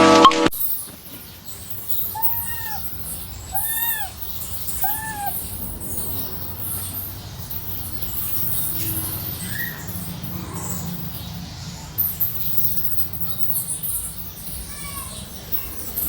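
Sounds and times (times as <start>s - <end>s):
cat meowing: 2.0s - 5.5s.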